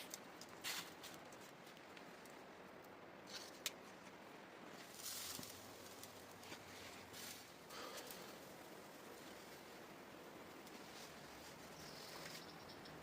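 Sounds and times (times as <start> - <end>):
low background hiss: 0.0 - 13.0
faint rustles: 3.2 - 12.9.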